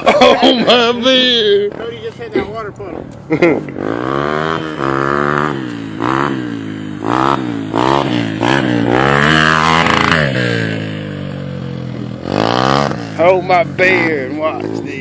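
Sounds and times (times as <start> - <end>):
dirt bike engine revving: 3.4 - 15.0.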